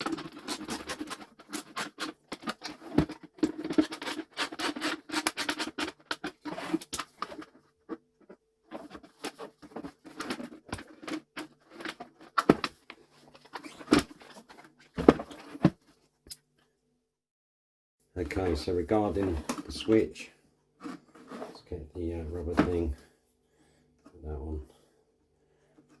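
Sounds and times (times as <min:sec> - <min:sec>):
plastic parts scraping and clicking: 0:00.0 - 0:16.6, 0:18.3 - 0:23.0.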